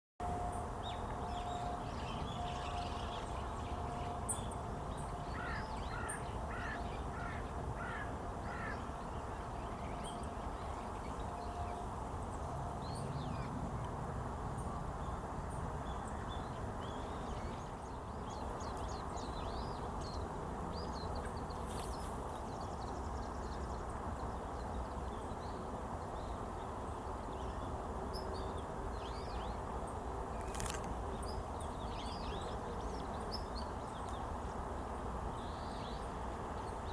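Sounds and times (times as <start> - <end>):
crow cawing: 5.4 - 8.8.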